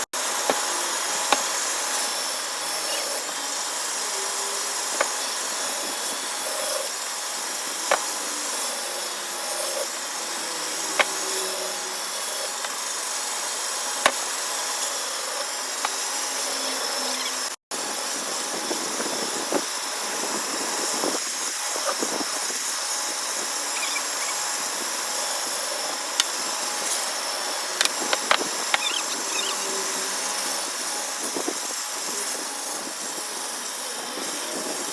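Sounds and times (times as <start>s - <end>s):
woodworking power tool running: 0.0s - 34.9s.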